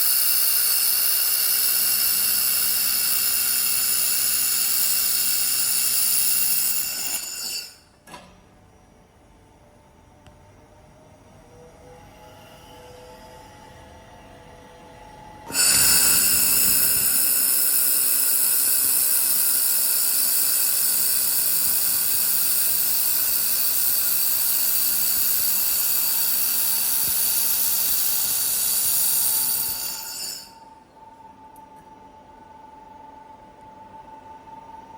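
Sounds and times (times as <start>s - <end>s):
laser welder whine with hiss: 0.0s - 7.9s, 15.5s - 30.6s.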